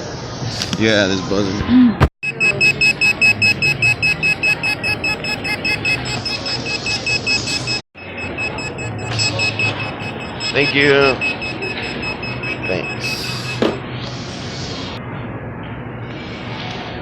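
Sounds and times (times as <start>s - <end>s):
pager beeping and buzzing: 2.2s - 13.8s.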